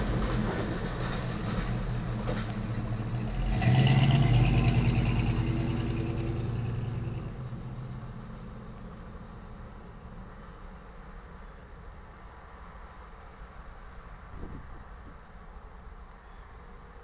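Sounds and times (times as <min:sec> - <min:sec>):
vehicle engine: 0:00.0 - 0:13.4
freight train rumbling: 0:00.0 - 0:17.0.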